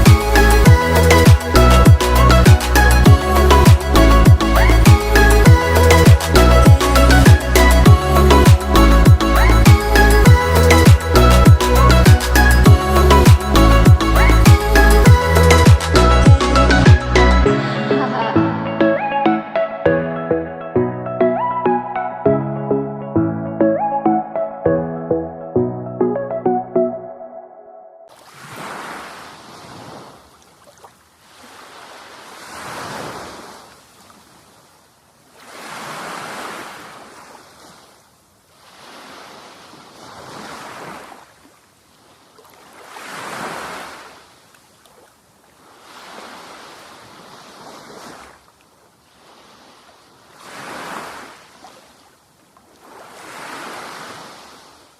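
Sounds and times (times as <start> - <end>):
waves breaking on beach: 0.0 - 17.1, 28.1 - 54.9.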